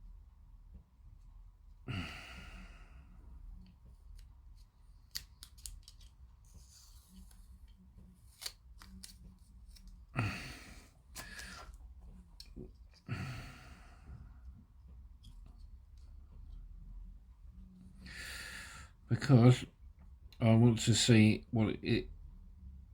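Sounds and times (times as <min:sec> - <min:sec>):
person breathing: 0:01.8 - 0:03.5, 0:10.1 - 0:11.8, 0:13.0 - 0:14.5, 0:18.0 - 0:19.0
plastic parts clicking and snipping: 0:05.1 - 0:06.1.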